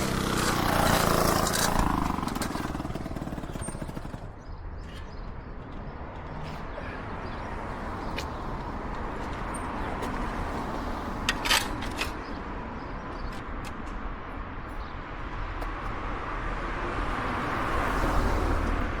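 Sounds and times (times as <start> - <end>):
moped two-stroke engine running: 0.0 - 4.5.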